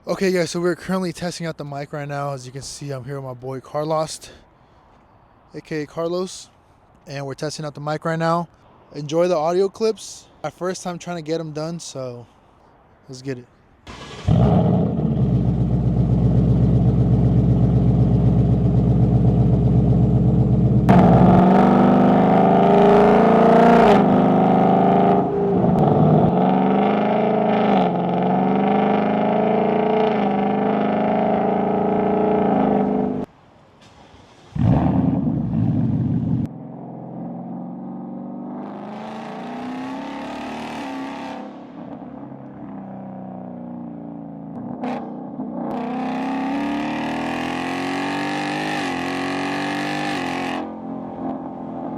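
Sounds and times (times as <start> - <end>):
car exhaust revving: 14.0 - 33.3, 34.6 - 36.5.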